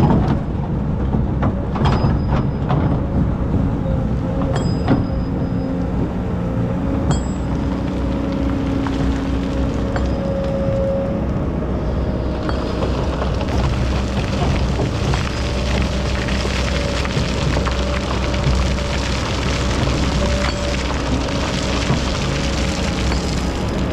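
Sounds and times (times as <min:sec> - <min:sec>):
diesel engine running: 0:00.0 - 0:23.9
hydraulic whine: 0:01.7 - 0:23.9
rushing rattling noise: 0:12.2 - 0:23.9.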